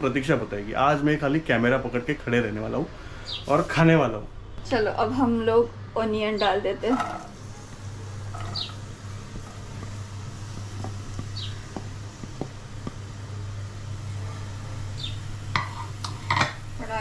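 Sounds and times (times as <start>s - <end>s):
steady low hum: 0.0s - 17.0s
onions frying in oil: 6.4s - 17.0s
spoon tapping pan: 8.3s - 13.1s.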